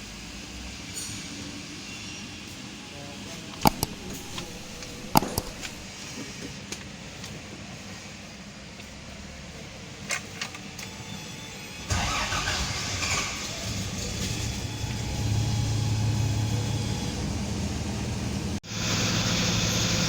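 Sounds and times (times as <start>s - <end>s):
car engine starting and running: 3.6s - 5.9s, 11.9s - 20.0s
sharp clicks: 3.6s - 5.9s.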